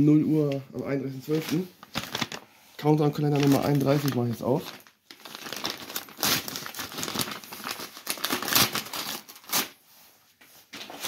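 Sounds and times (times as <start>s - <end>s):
cardboard and paper tearing: 3.3s - 9.8s.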